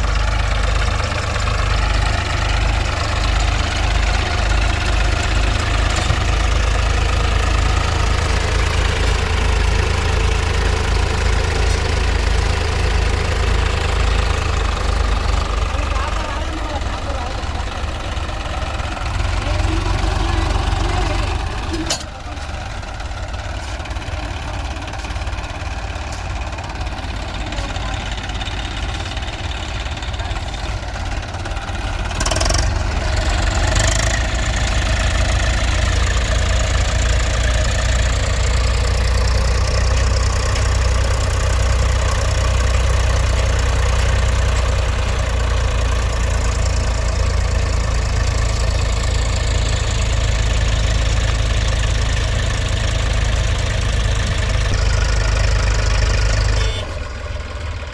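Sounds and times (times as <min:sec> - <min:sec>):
tractor diesel engine running: 0:00.0 - 0:57.9
short engine knocks: 0:05.6 - 0:06.8.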